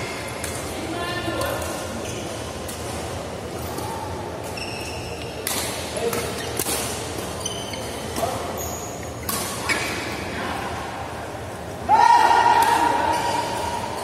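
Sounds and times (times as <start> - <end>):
shoes squeaking on court: 3.6 - 10.3.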